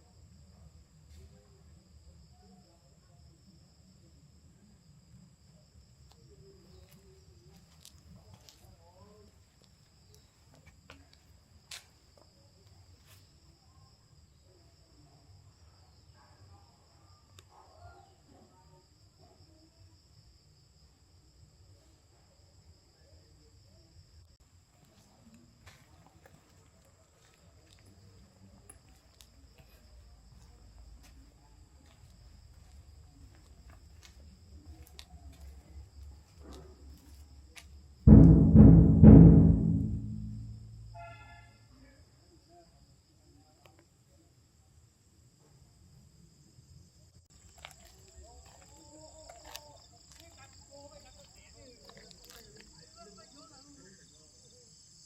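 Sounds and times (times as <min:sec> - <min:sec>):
crickets chirring: 0:00.0 - 0:38.0, 0:40.9 - 0:55.0
insects chirring: 0:05.0 - 0:16.1
deep drum strikes: 0:38.1 - 0:41.0.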